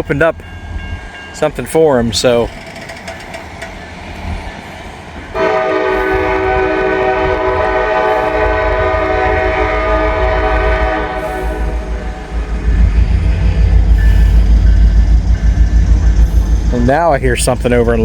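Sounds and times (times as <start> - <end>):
locomotive rumble: 0.0 - 18.0
locomotive air horn blast: 5.4 - 12.5.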